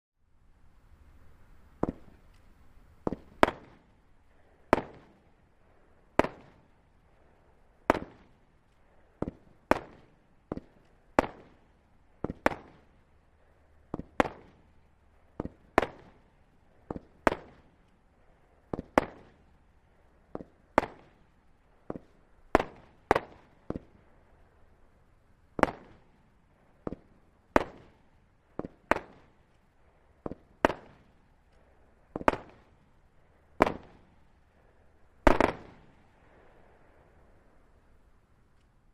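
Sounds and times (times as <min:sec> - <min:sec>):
firework bangs with echo: 0:01.8 - 0:02.3, 0:03.0 - 0:03.9, 0:04.7 - 0:05.2, 0:06.2 - 0:06.6, 0:07.9 - 0:08.4, 0:12.2 - 0:12.9, 0:13.9 - 0:14.7, 0:25.6 - 0:26.1, 0:26.8 - 0:28.0, 0:30.2 - 0:31.1, 0:32.1 - 0:32.7, 0:33.6 - 0:34.2, 0:35.2 - 0:36.0.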